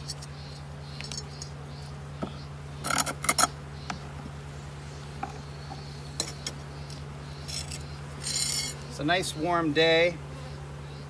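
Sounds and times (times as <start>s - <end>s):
hive equipment clicks and clinks: 0.0s - 1.6s, 6.2s - 8.9s
honeybees humming: 0.0s - 11.0s.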